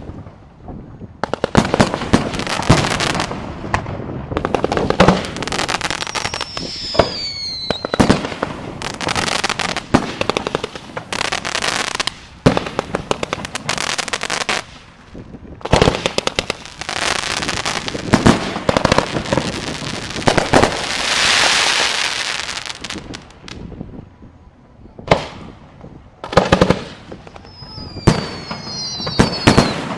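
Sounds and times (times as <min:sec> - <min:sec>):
fireworks crackling and banging: 0:00.0 - 0:24.0, 0:25.0 - 0:29.9
falling firework whistle: 0:05.0 - 0:10.1, 0:27.2 - 0:29.9.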